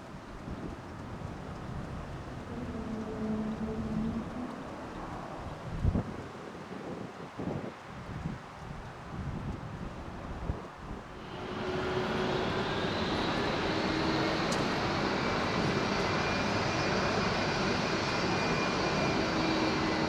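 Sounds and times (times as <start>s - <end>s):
jet engines roaring: 11.0s - 20.0s.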